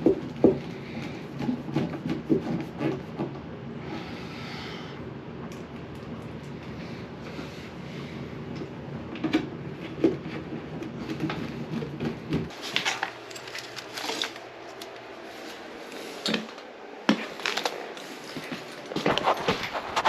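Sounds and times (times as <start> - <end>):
steady low hum: 0.0 - 20.0
clicks and knocks of tools: 12.7 - 15.0.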